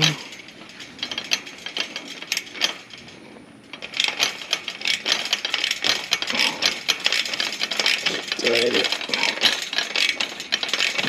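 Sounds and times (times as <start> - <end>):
hand tool clicking: 3.8 - 11.0.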